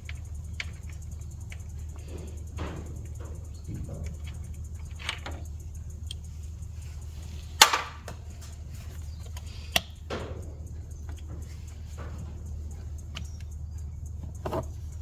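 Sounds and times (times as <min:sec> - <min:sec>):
steady low hum: 0:00.0 - 0:15.0
metal tools knocking and clinking: 0:07.6 - 0:08.6.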